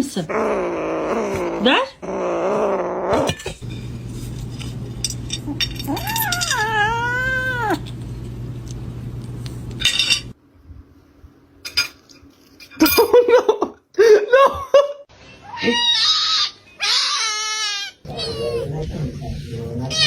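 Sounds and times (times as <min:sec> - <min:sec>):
steady low hum: 0:03.4 - 0:11.6
cat meowing: 0:05.9 - 0:07.8, 0:15.4 - 0:18.8.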